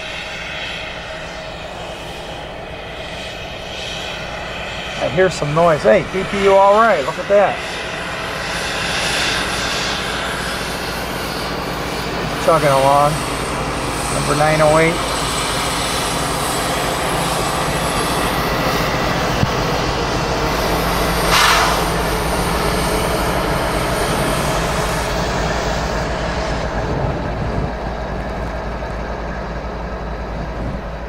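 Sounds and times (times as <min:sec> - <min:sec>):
freight train rolling on rails: 0:00.0 - 0:31.0
burst of high-pitched noise: 0:21.2 - 0:22.0.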